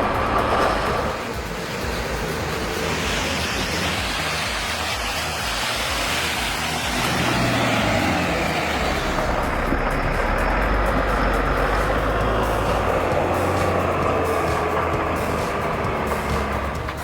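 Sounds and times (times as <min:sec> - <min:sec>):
broad rushing noise: 0:00.0 - 0:17.0
heavy machine engine running: 0:00.0 - 0:17.0.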